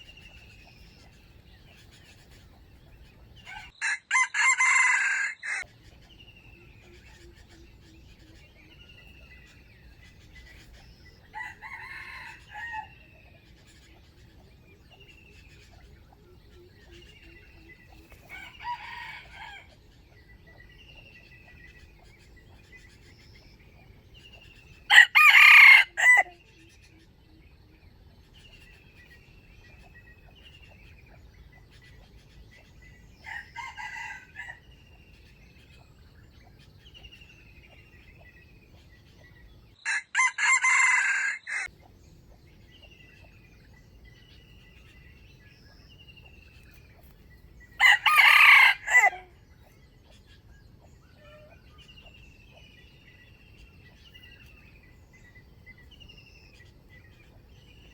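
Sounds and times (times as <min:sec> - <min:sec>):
small bird chirping: 0:00.0 - 0:03.8, 0:05.6 - 0:25.2, 0:25.8 - 0:39.8, 0:41.6 - 0:57.9
distant rooster crowing: 0:03.4 - 0:05.7, 0:11.3 - 0:13.1, 0:18.2 - 0:19.8, 0:24.9 - 0:26.4, 0:33.2 - 0:34.6, 0:39.8 - 0:41.7, 0:47.8 - 0:49.4
roosters crowing: 0:03.4 - 0:05.7, 0:11.2 - 0:13.2, 0:18.0 - 0:19.8, 0:24.9 - 0:26.4, 0:33.2 - 0:34.7, 0:39.8 - 0:41.7, 0:47.7 - 0:49.4.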